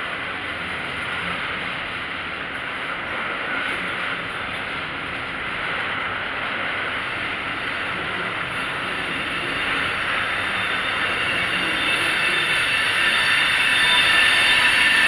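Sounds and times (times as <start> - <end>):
freight train wheels on rail: 0.0 - 15.0
faint high wheel squeal: 7.6 - 15.0.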